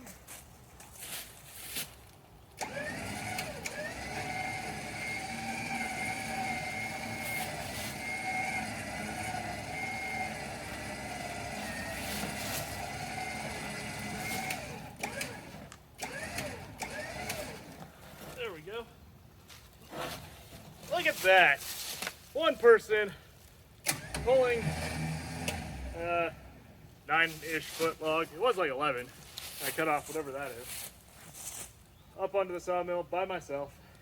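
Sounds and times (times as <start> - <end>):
electric winch whining: 2.6 - 17.8, 23.8 - 26.6.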